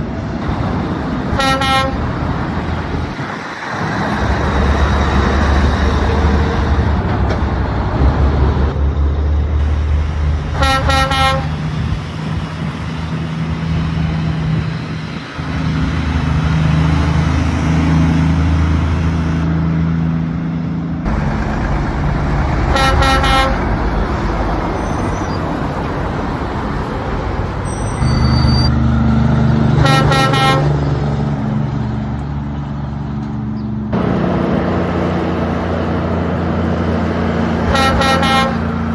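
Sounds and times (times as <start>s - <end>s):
truck engines running: 0.0s - 38.9s
truck horn honks: 0.4s - 2.9s, 10.5s - 11.7s, 22.5s - 25.4s, 27.6s - 28.8s, 29.7s - 31.0s, 34.0s - 38.9s.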